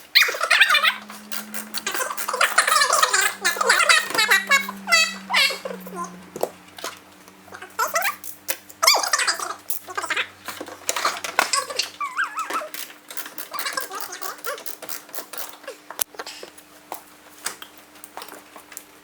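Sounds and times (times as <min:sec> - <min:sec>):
animal whining calls: 0:00.1 - 0:08.2, 0:12.0 - 0:12.7.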